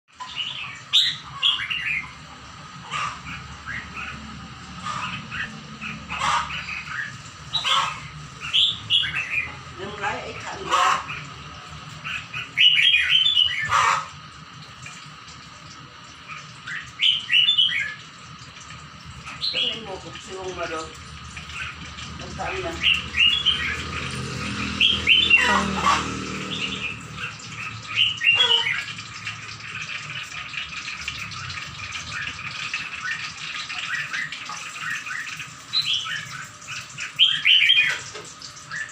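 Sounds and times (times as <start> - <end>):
songbirds chirping: 0.1 - 38.9
songbird chirping: 21.4 - 28.9.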